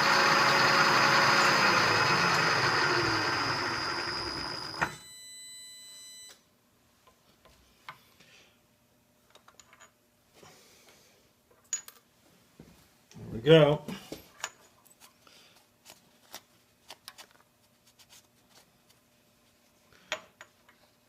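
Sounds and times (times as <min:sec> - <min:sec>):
milling machine winding down: 0:00.0 - 0:05.0
steady high whine: 0:00.0 - 0:05.2.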